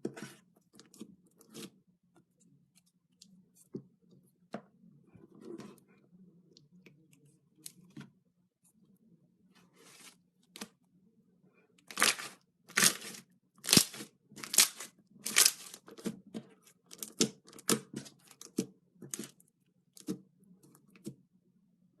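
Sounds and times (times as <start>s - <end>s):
crunchy slime crackling: 11.9s - 15.8s.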